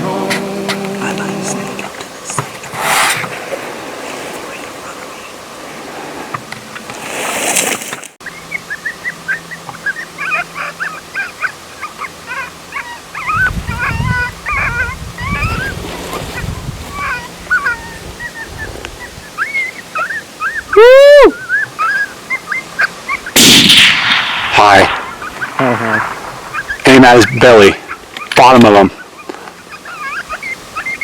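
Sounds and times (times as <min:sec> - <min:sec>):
coyote-like yips and whines: 0:08.2 - 0:23.4, 0:25.0 - 0:26.9, 0:29.0 - 0:31.0
rushing noise: 0:23.4 - 0:27.5.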